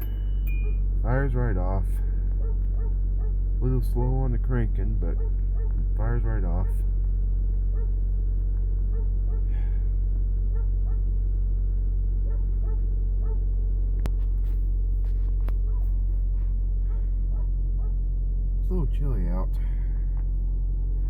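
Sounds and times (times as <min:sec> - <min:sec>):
car engine idling: 0:00.0 - 0:21.0
faint barks: 0:02.3 - 0:03.4, 0:05.1 - 0:06.9, 0:07.7 - 0:08.0, 0:08.8 - 0:09.8, 0:10.5 - 0:11.1, 0:12.2 - 0:13.5.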